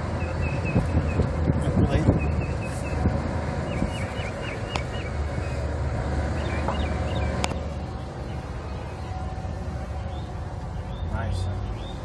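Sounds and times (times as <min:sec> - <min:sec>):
low outdoor rumble: 0:00.0 - 0:12.0
bird chirps: 0:03.7 - 0:05.7, 0:06.3 - 0:07.4, 0:10.0 - 0:12.0.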